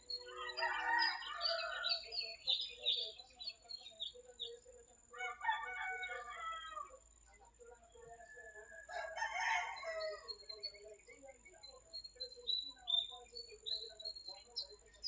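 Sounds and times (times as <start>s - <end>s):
small birds chirping: 0.0s - 15.0s
rooster crowing: 0.2s - 2.2s, 5.1s - 7.0s, 8.8s - 10.3s.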